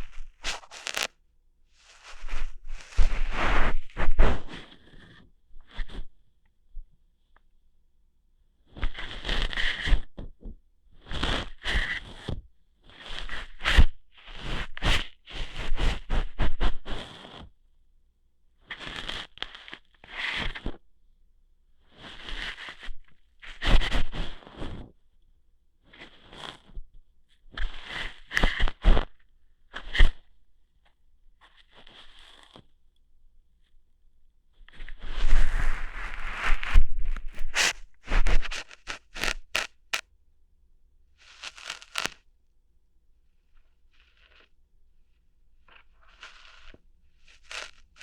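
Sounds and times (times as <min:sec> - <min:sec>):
ear hair plucked and rubbed: 0:00.0 - 0:01.1, 0:01.8 - 0:05.0, 0:34.7 - 0:40.0, 0:41.2 - 0:42.3, 0:43.5 - 0:44.5, 0:45.6 - 0:48.0
scratchy crackling and rustling: 0:00.0 - 0:01.1, 0:01.7 - 0:05.2, 0:31.4 - 0:32.7, 0:34.7 - 0:40.0, 0:41.2 - 0:42.2, 0:43.5 - 0:44.6, 0:45.6 - 0:48.0
sharp snaps: 0:38.5 - 0:40.0, 0:41.4 - 0:42.2.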